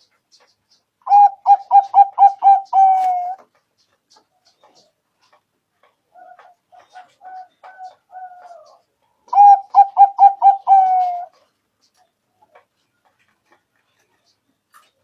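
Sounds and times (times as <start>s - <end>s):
dove cooing: 1.0s - 3.5s, 6.1s - 11.5s.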